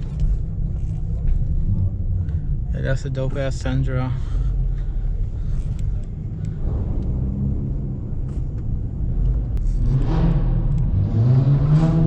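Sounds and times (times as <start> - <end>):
car engine revving: 5.2 - 12.0.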